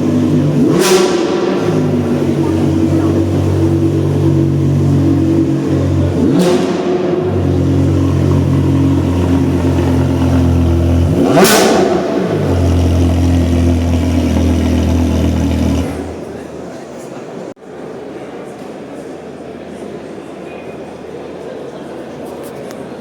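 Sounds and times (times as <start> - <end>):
engine revving: 0.0 - 16.5
car engine idling: 0.0 - 16.7.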